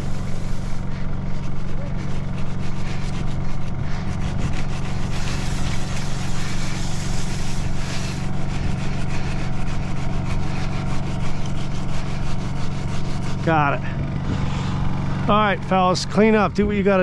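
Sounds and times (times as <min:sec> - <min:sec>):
rushing hiss: 0:00.0 - 0:00.9, 0:04.8 - 0:08.3
truck engine humming: 0:00.0 - 0:17.0.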